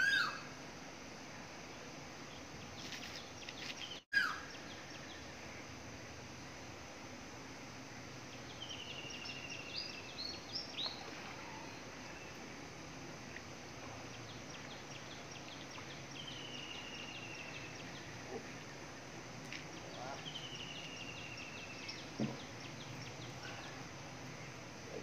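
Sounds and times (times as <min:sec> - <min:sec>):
bird trilling: 0:00.0 - 0:00.4
low background noise: 0:00.0 - 0:25.0.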